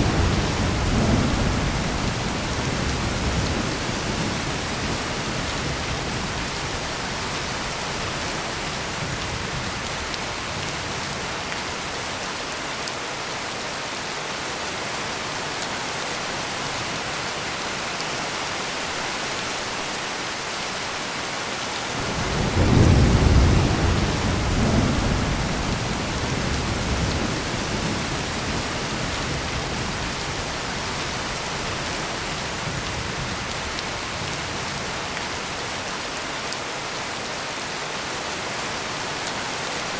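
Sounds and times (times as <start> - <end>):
heavy rain falling: 0.0 - 39.9
thunderclap: 22.0 - 28.0.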